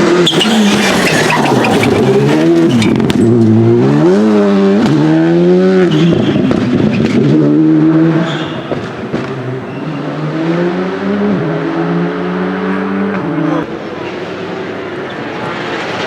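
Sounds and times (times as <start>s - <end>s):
rally car engine revving: 0.0s - 16.0s
exhaust cracks: 0.2s - 4.1s, 6.0s - 10.6s.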